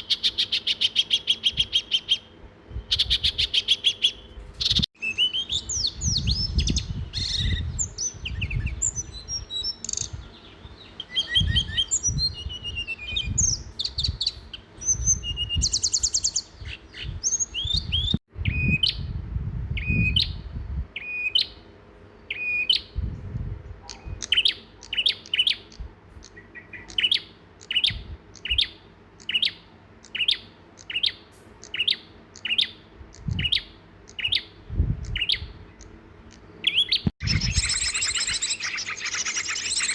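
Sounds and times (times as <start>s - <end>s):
songbirds chirping: 0.0s - 19.1s, 19.7s - 39.9s
bird repeating short chirp: 36.3s - 39.9s.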